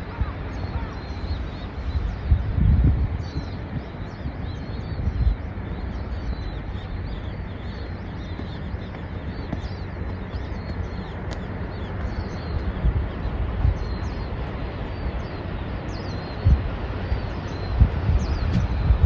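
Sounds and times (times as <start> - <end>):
birds chirping: 0.0 - 19.0
wind buffeting microphone: 0.0 - 19.0.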